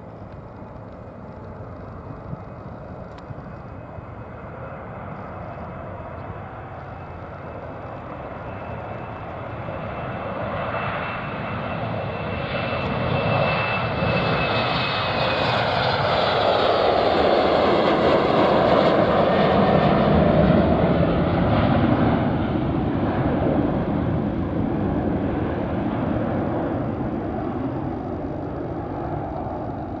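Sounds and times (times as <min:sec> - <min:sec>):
faint high whine: 0:00.0 - 0:16.3, 0:23.1 - 0:30.0
airliner engine noise: 0:00.0 - 0:30.0.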